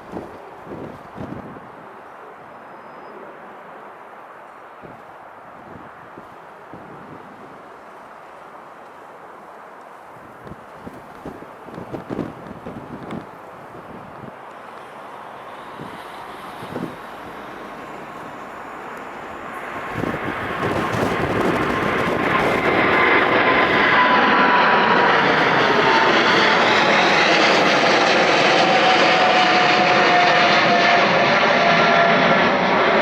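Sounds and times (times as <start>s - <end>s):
jet engines at high thrust: 10.3s - 33.0s.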